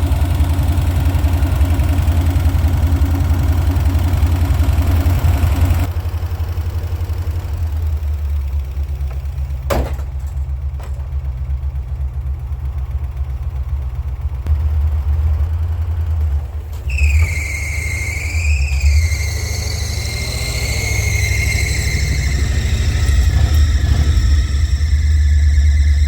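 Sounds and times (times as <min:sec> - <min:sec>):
truck engine idling: 0:00.0 - 0:26.0
lifter ticking: 0:10.5 - 0:26.0
high whine: 0:16.8 - 0:26.0.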